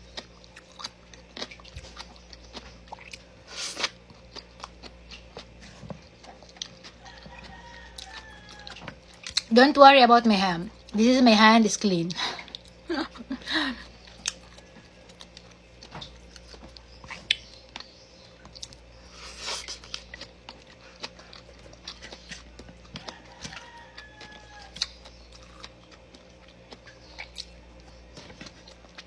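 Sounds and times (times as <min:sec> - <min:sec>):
chewing and mouth smacks: 0:00.0 - 0:09.5, 0:13.8 - 0:29.0
faint low hum: 0:00.0 - 0:29.0.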